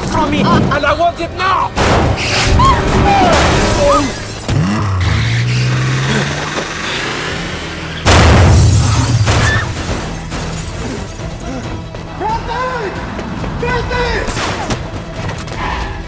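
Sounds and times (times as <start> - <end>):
dramatic score: 0.0 - 16.0
glass breaking: 1.8 - 7.1, 8.0 - 11.7
loud crash: 1.8 - 10.8
vehicle engine: 2.5 - 10.7.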